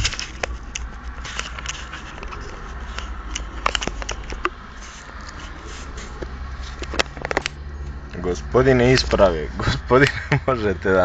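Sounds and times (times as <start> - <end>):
light clicks and rustles: 0.0 - 8.0
car engine idling: 0.0 - 11.0.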